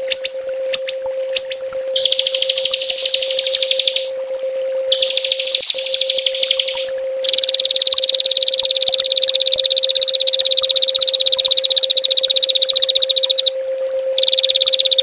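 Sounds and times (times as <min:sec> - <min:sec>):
songbird trilling: 0:00.0 - 0:04.1, 0:04.9 - 0:08.4
steady low hum: 0:00.0 - 0:15.0.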